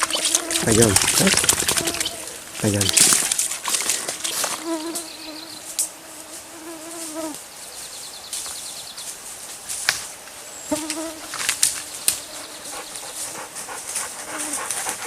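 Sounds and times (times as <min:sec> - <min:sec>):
fly buzzing: 0:00.0 - 0:07.4, 0:10.7 - 0:15.0.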